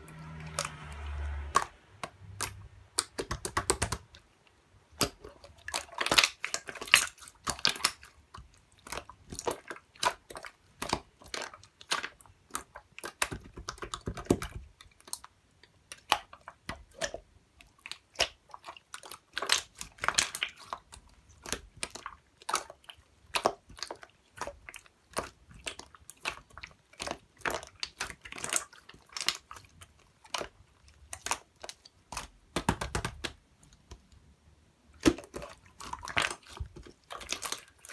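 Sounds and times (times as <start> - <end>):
slime squished by hand: 0.0 - 4.3, 4.9 - 34.2, 34.9 - 37.9
sticky clicks and crackles: 0.4 - 4.2.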